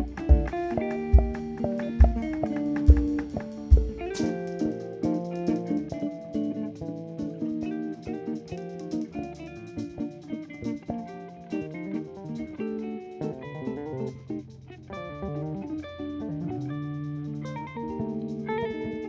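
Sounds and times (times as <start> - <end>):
live instrumental band music: 0.0 - 14.4.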